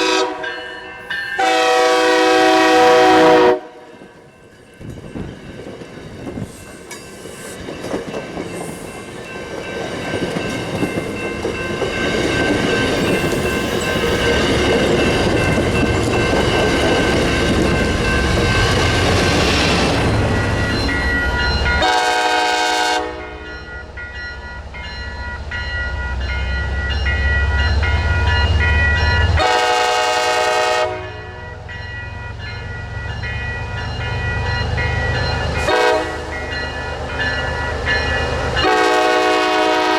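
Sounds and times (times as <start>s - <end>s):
train horn blasts: 0.0s - 3.9s, 21.8s - 23.5s, 29.4s - 31.6s, 35.6s - 36.4s, 38.6s - 39.9s
diesel train rumbling past: 0.0s - 39.9s.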